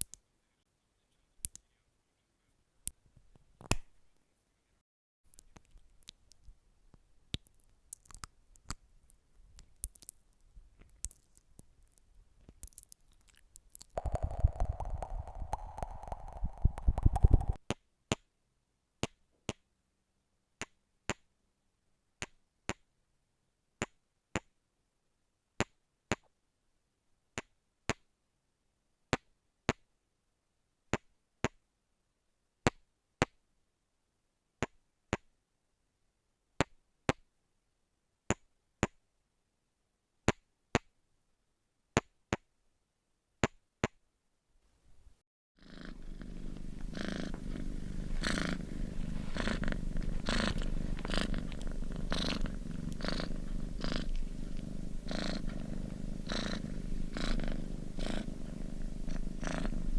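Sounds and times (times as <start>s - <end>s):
faint clicks: 49.0s - 54.7s.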